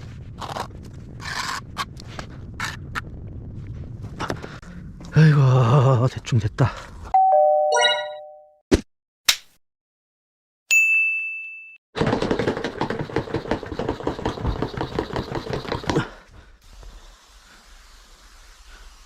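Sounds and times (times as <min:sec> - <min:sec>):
bright ding: 0:07.2 - 0:08.5, 0:10.7 - 0:11.8.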